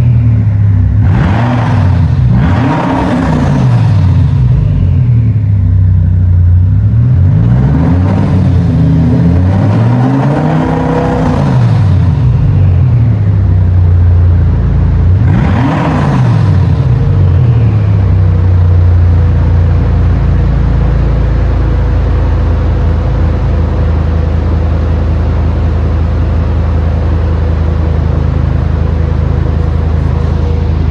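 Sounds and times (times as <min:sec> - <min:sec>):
car engine revving and idling: 0:00.0 - 0:30.9.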